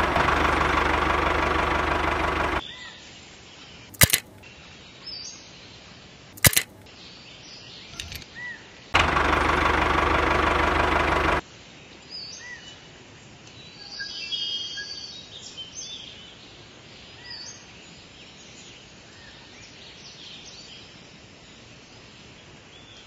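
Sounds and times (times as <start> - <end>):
small electric motor running: 0.0 - 2.6
sharp clicks: 3.9 - 4.4, 6.4 - 6.8, 8.0 - 8.2.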